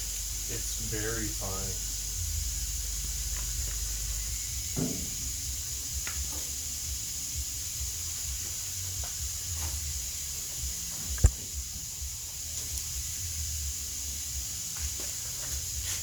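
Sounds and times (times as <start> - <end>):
steady hiss: 0.0 - 16.0
polish scuffing on metal: 8.4 - 10.0, 14.7 - 16.0.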